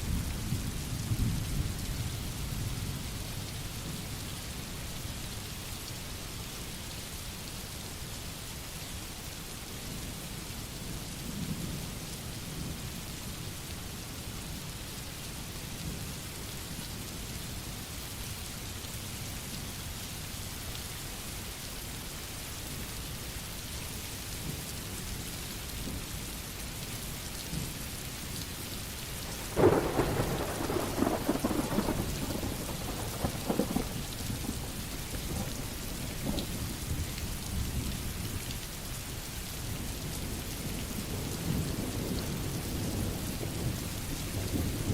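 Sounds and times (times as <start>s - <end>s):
rain hissing: 27.5s - 44.9s
thunderclap rumbling: 29.3s - 36.4s.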